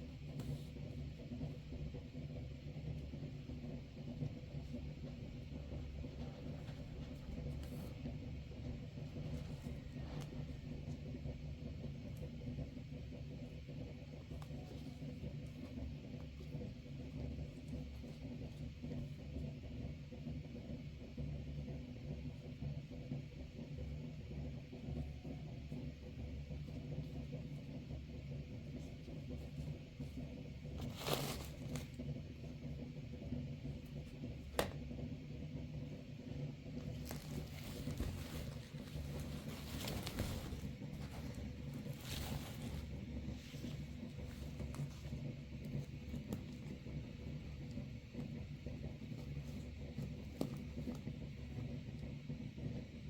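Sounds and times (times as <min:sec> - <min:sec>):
crackling rustle: 0:30.7 - 0:32.0, 0:36.7 - 0:47.8.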